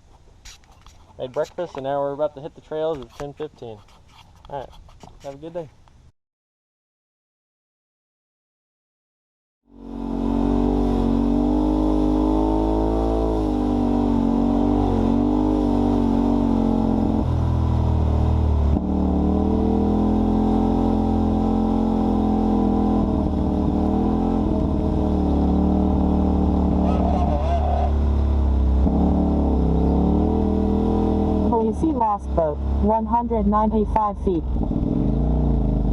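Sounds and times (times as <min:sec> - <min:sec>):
off-road vehicle engine running: 0:09.7 - 0:35.9.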